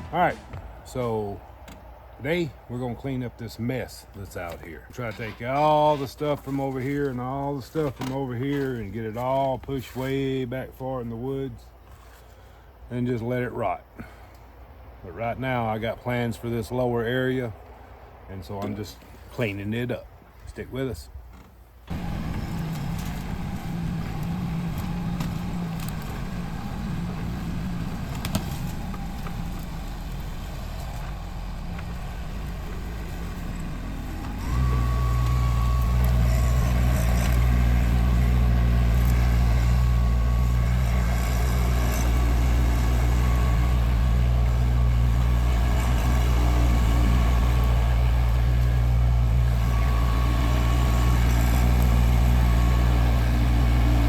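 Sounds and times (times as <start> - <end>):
tractor engine running: 0.0 - 9.4, 21.9 - 54.0.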